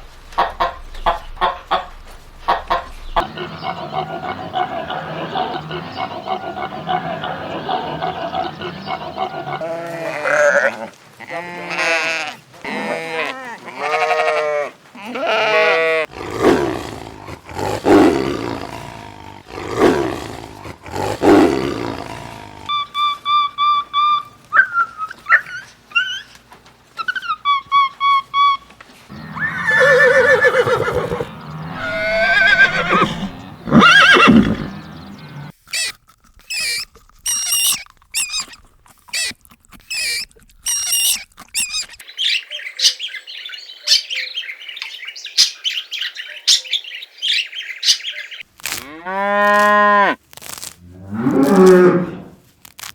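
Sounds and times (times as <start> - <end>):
animal calls: 0.4 - 43.0
short sharp squeaks: 35.6 - 42.0.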